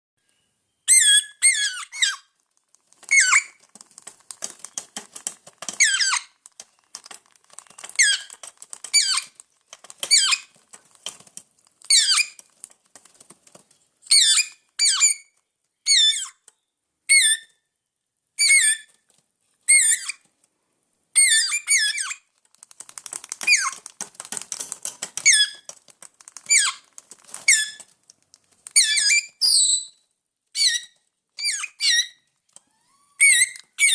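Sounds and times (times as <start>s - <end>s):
parrots squeaky calls: 0.9s - 2.4s, 3.0s - 3.6s, 5.6s - 6.4s, 7.6s - 10.6s, 11.9s - 12.5s, 14.1s - 16.4s, 17.1s - 17.6s, 18.4s - 18.9s, 19.7s - 20.2s, 21.2s - 22.3s, 23.3s - 23.9s, 26.3s - 27.9s, 28.7s - 30.0s, 30.6s - 33.9s
fast small clicks: 2.3s - 14.8s, 22.0s - 29.8s.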